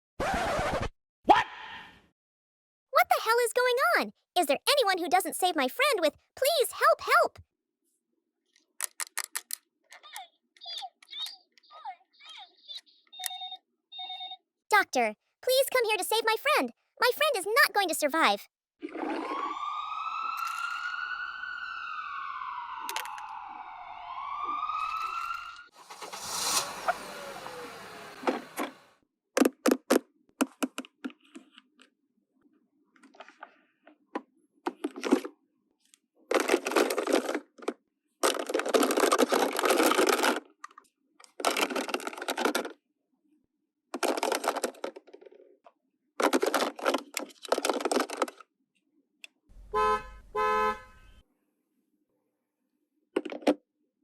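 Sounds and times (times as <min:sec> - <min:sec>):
plastic toys clicking and rattling: 0:08.5 - 0:11.6, 0:36.3 - 0:42.8, 0:44.0 - 0:45.4, 0:46.2 - 0:48.5
electronic toy sound: 0:10.7 - 0:14.4
toy siren: 0:13.0 - 0:14.4, 0:19.1 - 0:25.8.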